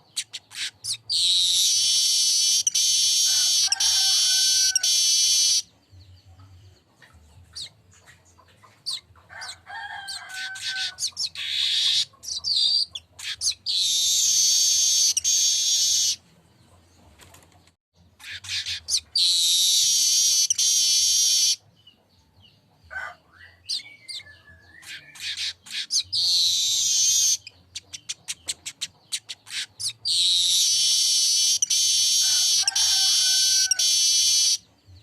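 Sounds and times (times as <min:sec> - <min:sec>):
bird chirps and clicks: 0:00.0 - 0:03.8, 0:23.6 - 0:32.9
high buzzing bird song: 0:00.0 - 0:35.0.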